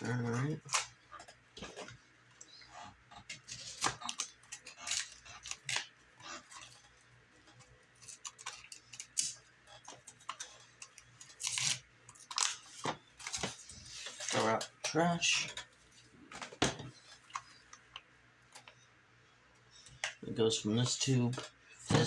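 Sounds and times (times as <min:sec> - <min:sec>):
hands handling packaging: 0:08.0 - 0:15.5.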